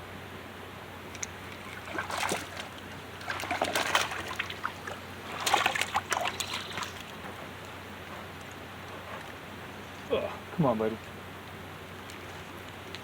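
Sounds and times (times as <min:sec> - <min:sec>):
fish splashing in water: 0:01.2 - 0:07.4
creek rushing: 0:01.2 - 0:11.4.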